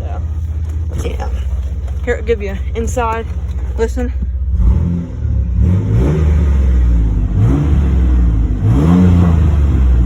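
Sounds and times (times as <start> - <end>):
engine revving over idle: 3.8 - 10.0.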